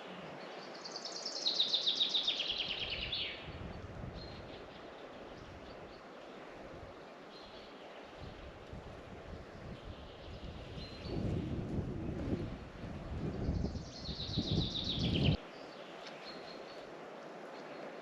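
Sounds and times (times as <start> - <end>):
songbird trill: 0.0 - 6.2, 13.4 - 16.9.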